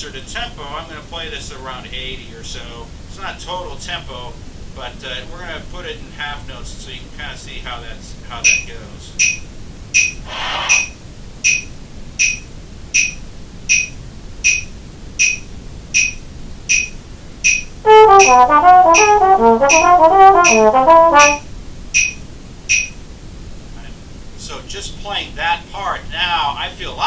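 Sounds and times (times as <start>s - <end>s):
metronome clicking: 13.0s - 15.4s, 17.5s - 21.4s
trombone playing quick notes: 17.9s - 21.4s.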